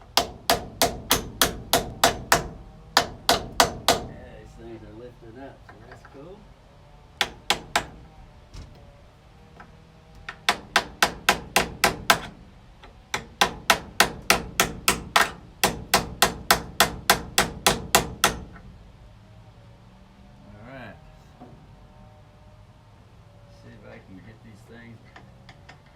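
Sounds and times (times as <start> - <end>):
hammer striking metal tool: 0.2 - 4.1, 10.3 - 12.4.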